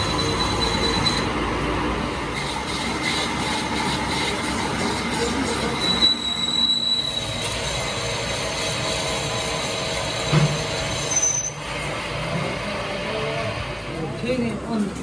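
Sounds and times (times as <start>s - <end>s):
metal-on-metal squeals: 0.0s - 1.5s, 2.3s - 11.8s
metalworking machinery running: 0.0s - 15.0s.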